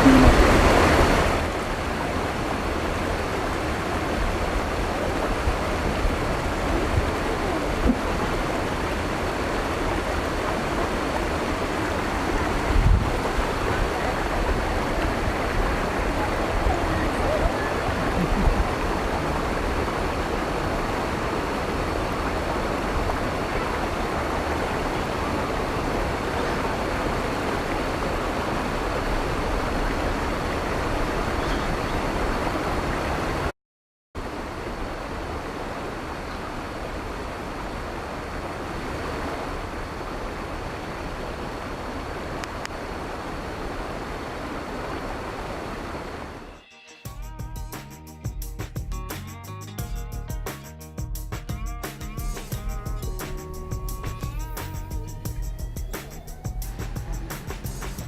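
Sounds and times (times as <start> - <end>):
waterfall rushing into pool: 0.0 - 33.5, 34.2 - 46.6.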